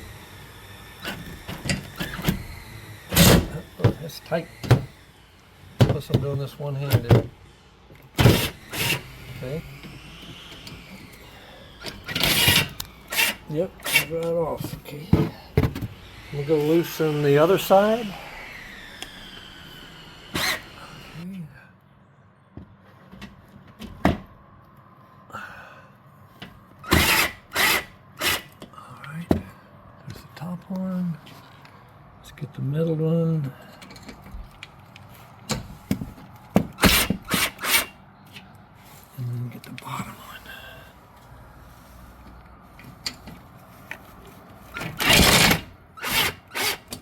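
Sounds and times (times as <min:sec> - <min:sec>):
cordless drill bursts: 0:00.0 - 0:14.2, 0:15.8 - 0:21.2, 0:26.8 - 0:28.6, 0:36.8 - 0:38.0, 0:44.7 - 0:47.0.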